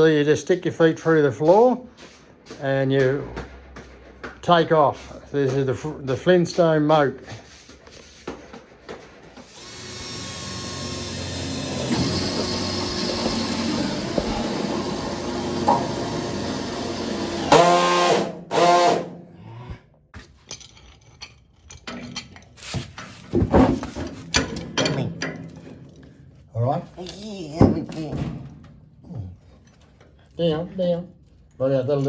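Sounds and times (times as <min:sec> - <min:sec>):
handheld power tool running: 0:09.4 - 0:19.1.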